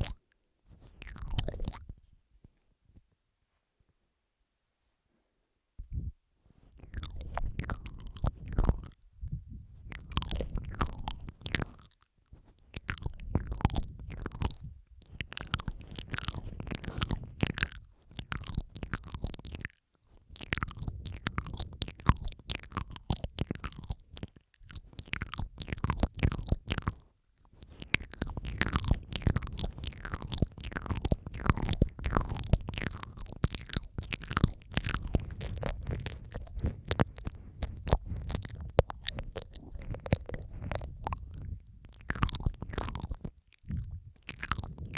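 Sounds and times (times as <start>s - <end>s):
wet mouth clicks and smacks: 0.0s - 2.0s, 6.7s - 44.9s.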